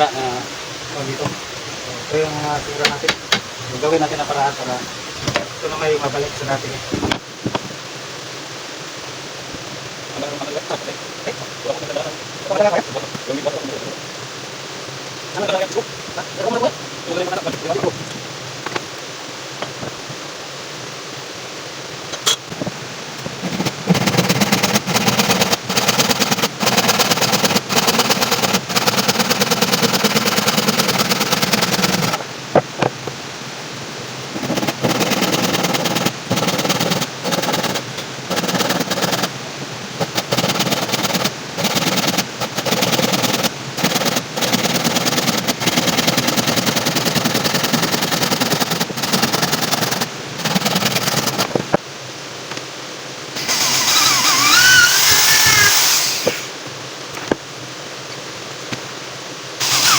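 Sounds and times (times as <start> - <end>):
power tool rattling: 23.4 - 32.2, 34.4 - 39.4, 40.0 - 51.6, 53.4 - 56.6, 59.6 - 59.9.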